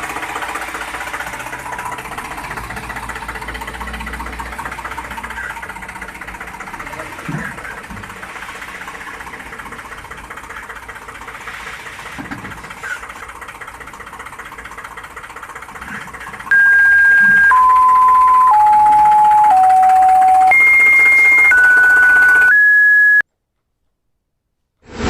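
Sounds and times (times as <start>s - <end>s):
descending electronic beeps: 16.5s - 23.2s.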